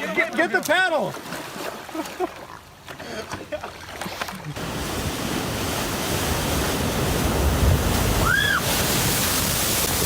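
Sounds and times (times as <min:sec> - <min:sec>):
surf: 0:04.0 - 0:10.0.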